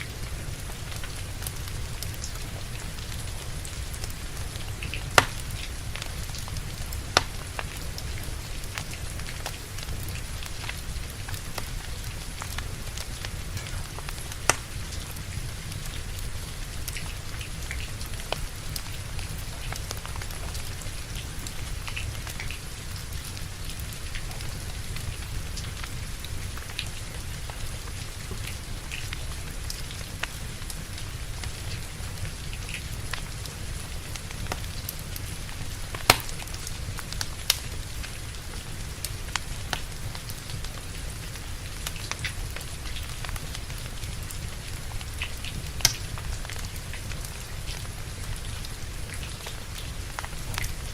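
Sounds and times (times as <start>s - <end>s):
steady rain: 0.0s - 50.9s
wood fire crackling: 0.0s - 50.9s
fire pops: 4.6s - 6.1s, 7.0s - 7.8s, 14.1s - 14.8s, 35.8s - 36.6s, 45.0s - 46.6s.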